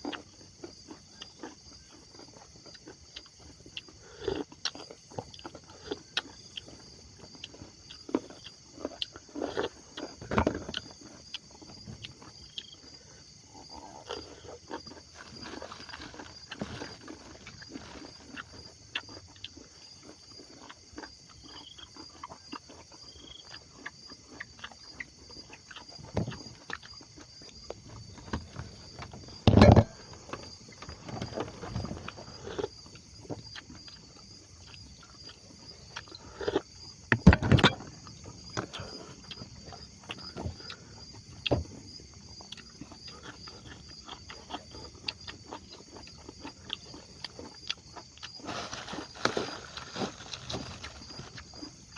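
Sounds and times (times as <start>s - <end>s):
insects chirping: 0.0s - 51.9s
loud thumps: 29.4s - 30.2s, 37.1s - 38.0s.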